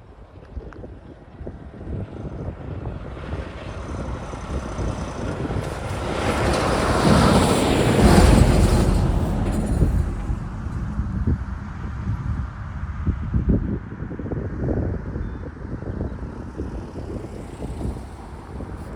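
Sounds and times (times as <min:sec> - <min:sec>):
vehicle passing by: 0:02.8 - 0:15.0, 0:15.9 - 0:18.9.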